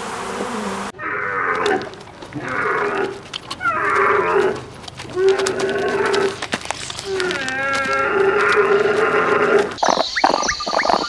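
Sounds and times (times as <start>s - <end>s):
honeybees buzzing: 0.0s - 11.0s
camels groaning calls: 1.0s - 9.8s.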